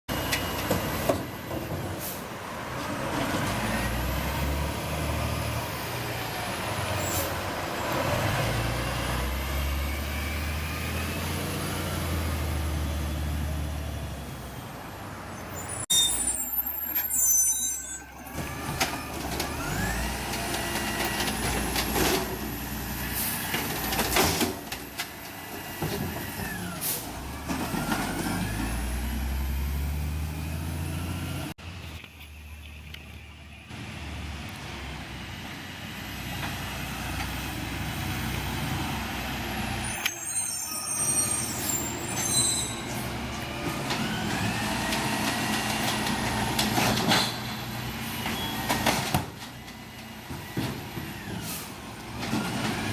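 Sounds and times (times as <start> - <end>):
high-pitched squeal: 15.4 - 18.6, 39.8 - 43.5.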